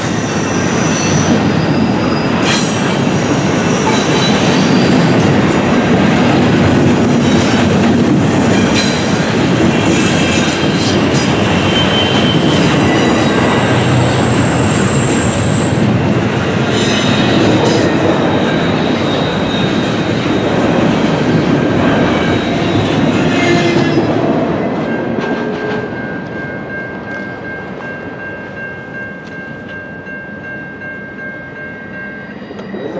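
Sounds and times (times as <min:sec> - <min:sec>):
freight cars rumbling and rattling: 0:00.0 - 0:27.0
high wheel squeals: 0:00.2 - 0:05.1, 0:11.2 - 0:20.0.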